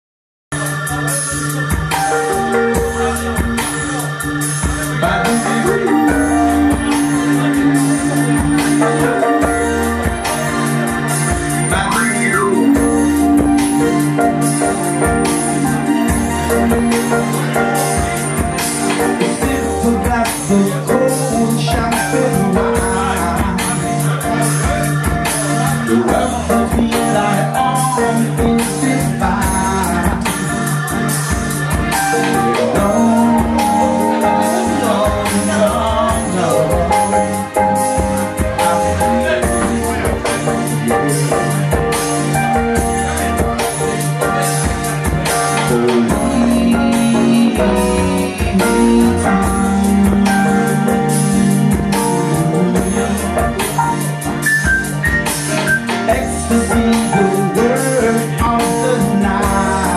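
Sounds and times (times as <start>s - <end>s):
bass line: 0.5s - 59.9s
steady percussion beat: 0.5s - 59.9s
sustained pitched notes: 0.5s - 59.9s
held chords: 0.6s - 59.9s.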